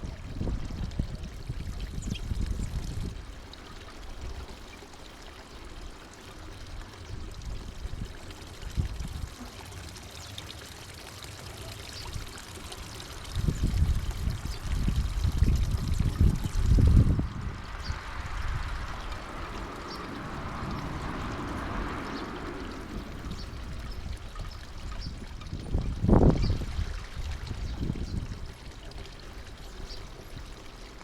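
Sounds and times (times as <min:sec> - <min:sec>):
low outdoor rumbling: 0:00.0 - 0:31.0
small birds chirping: 0:01.8 - 0:02.9, 0:11.4 - 0:26.7, 0:27.5 - 0:30.9.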